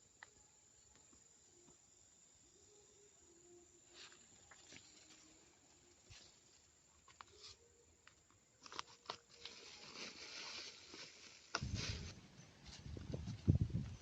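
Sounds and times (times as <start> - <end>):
rustling and crinkling: 3.9 - 14.0.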